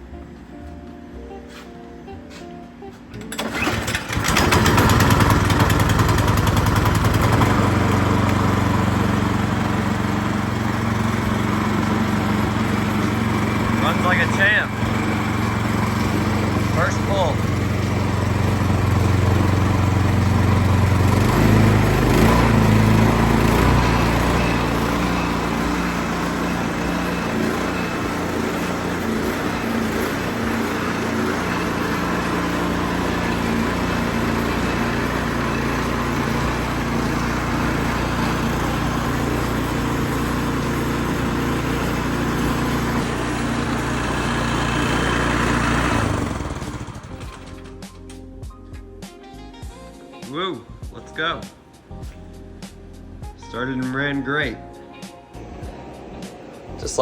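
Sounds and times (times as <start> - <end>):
snowblower engine running: 3.1 - 48.2.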